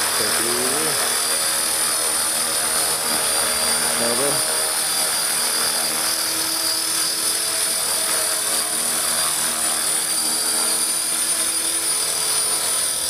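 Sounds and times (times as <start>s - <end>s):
rotor hum: 0.0s - 9.2s
electric motor whine: 0.0s - 13.0s.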